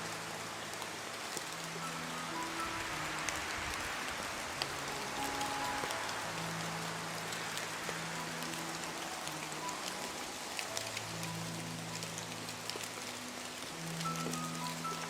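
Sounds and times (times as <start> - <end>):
soft music of low held notes: 0.0 - 15.0
steady rain falling: 0.0 - 15.0.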